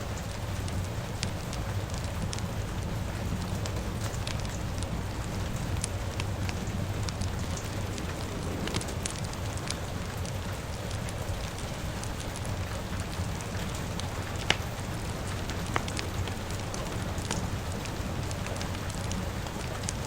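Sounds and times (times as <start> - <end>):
crackling fire: 0.0 - 20.0
rain hiss: 0.0 - 20.0
sharp pops: 14.3 - 16.5.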